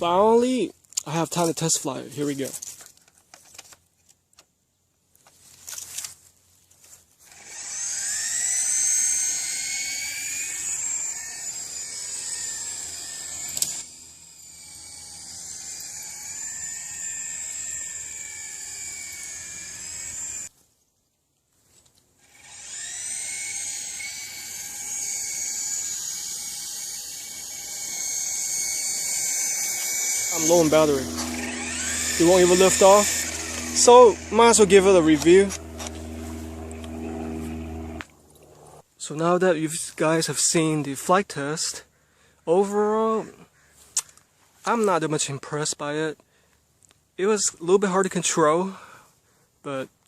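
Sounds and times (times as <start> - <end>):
rc helicopter rotor whine: 7.2 - 20.5, 22.2 - 38.8.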